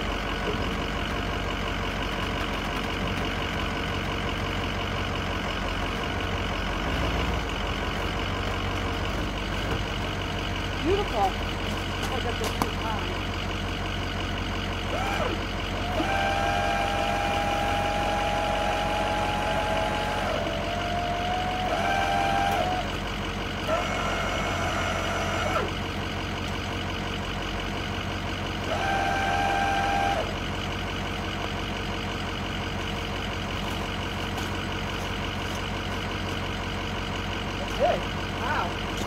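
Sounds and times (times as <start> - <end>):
truck engine idling: 0.0 - 39.0
electric jack motors whining: 14.9 - 23.0, 23.6 - 25.8, 28.7 - 30.3.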